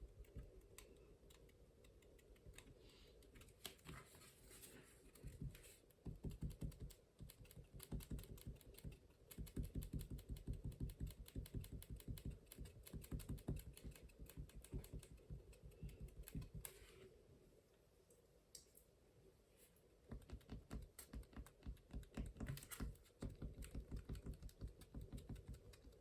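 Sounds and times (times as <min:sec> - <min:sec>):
brush tapping on paper: 0:05.1 - 0:16.8, 0:20.1 - 0:26.0.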